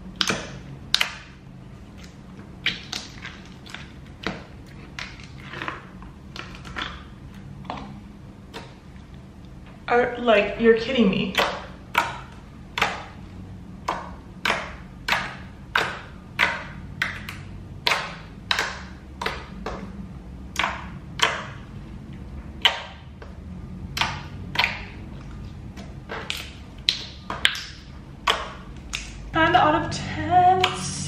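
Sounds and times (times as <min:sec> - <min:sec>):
slime clicking and popping: 0:00.1 - 0:01.4, 0:02.0 - 0:07.9, 0:11.3 - 0:13.2, 0:13.8 - 0:19.9, 0:20.5 - 0:21.6, 0:22.6 - 0:29.3.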